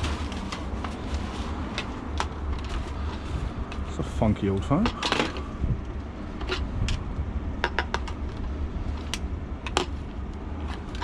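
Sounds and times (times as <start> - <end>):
low rumble: 5.3 - 11.0.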